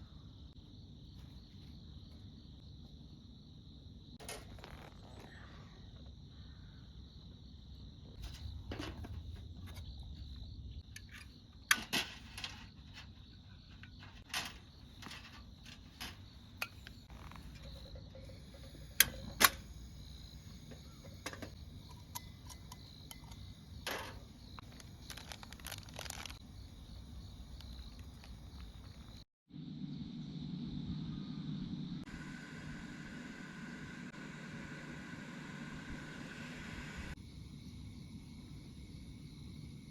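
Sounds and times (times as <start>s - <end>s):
insect trill: 0.0s - 35.4s, 37.1s - 39.9s
camp gear clicks and knocks: 10.9s - 19.8s, 20.7s - 29.2s.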